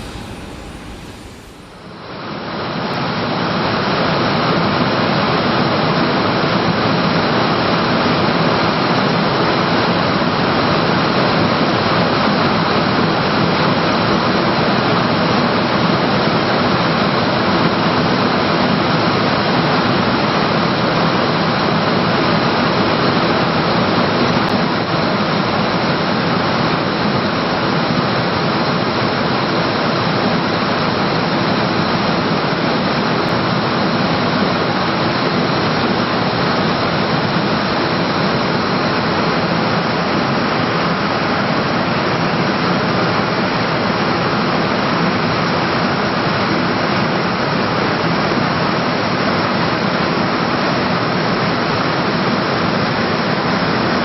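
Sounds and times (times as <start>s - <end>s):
jet engines roaring: 0.0s - 2.1s
faint high whine: 0.0s - 2.3s.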